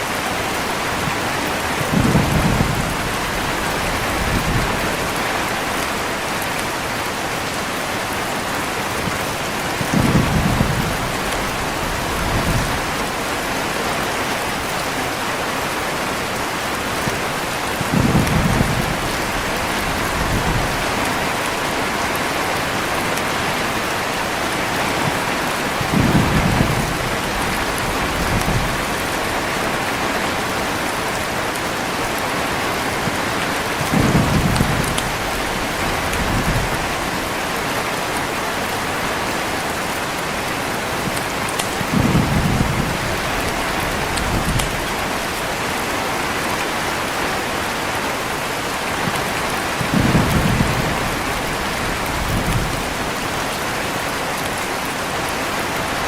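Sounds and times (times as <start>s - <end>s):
heavy rain: 0.0s - 56.0s
thunder rumbling: 1.1s - 6.5s, 8.6s - 14.2s, 17.7s - 22.2s, 22.8s - 31.4s, 32.1s - 38.1s, 40.9s - 45.7s, 48.8s - 53.4s.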